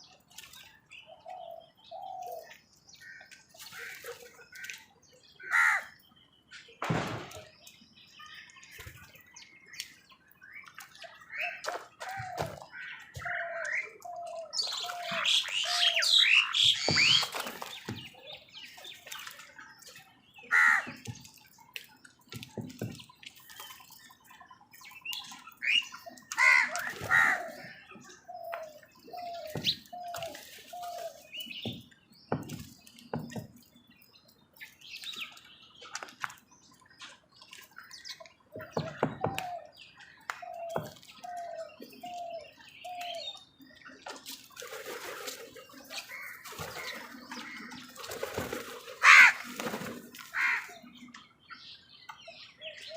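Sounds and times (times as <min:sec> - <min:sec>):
bird calls: 0:00.0 - 0:52.9
crows cawing: 0:05.4 - 0:05.9, 0:20.5 - 0:20.9, 0:26.4 - 0:27.6, 0:49.0 - 0:49.5, 0:50.3 - 0:50.8.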